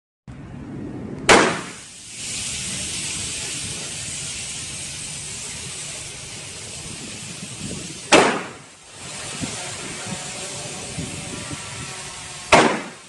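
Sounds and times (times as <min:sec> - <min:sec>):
gunshot: 0:01.3 - 0:01.8, 0:08.1 - 0:08.6, 0:12.5 - 0:13.0
air hissing out of tire: 0:01.4 - 0:13.0.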